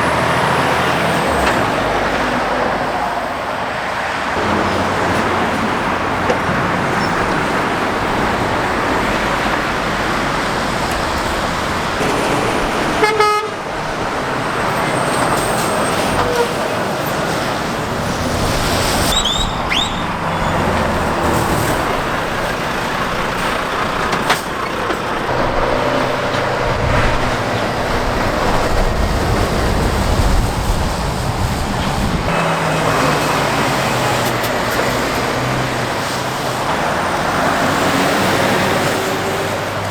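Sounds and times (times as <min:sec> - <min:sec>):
traffic passing at speed: 0:00.0 - 0:39.9
short horn toot: 0:12.9 - 0:13.7.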